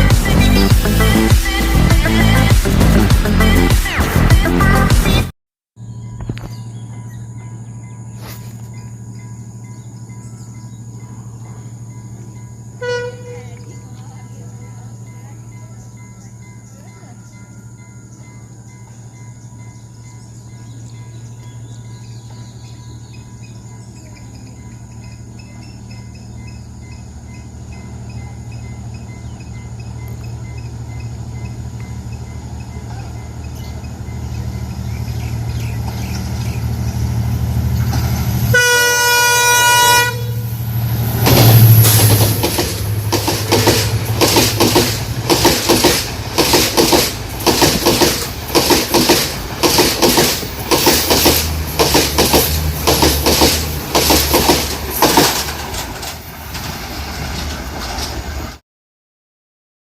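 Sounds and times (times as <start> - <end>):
diesel train engine drone: 0.0 - 58.6
train horn: 12.8 - 13.7, 38.4 - 40.7
train wheels clickety-clack: 20.6 - 38.5, 41.1 - 58.6.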